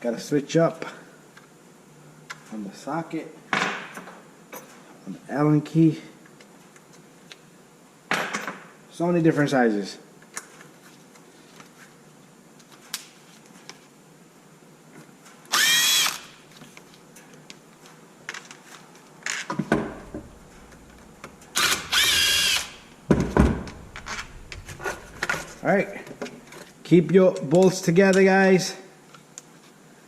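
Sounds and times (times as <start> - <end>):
cordless drill spinning: 15.5 - 16.4, 21.5 - 22.9.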